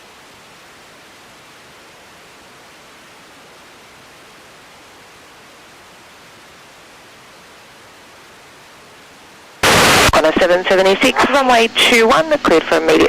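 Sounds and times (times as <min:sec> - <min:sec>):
radio static hiss: 0:09.4 - 0:13.0.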